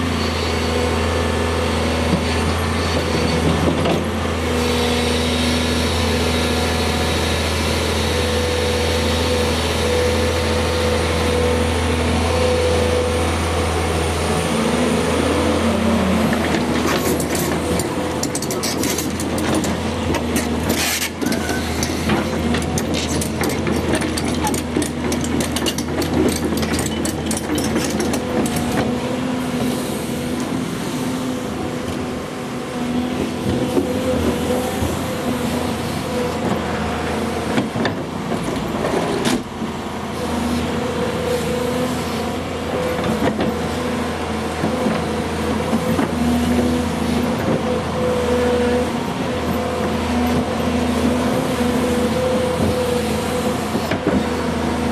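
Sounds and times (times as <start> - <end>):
excavator diesel engine running: 0.0 - 54.9
sharp clicks and rattles: 21.8 - 28.6.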